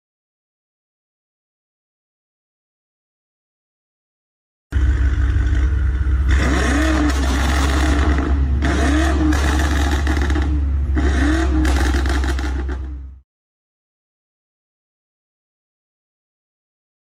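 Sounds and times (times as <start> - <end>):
car engine revving with low rumble: 4.7 - 13.2.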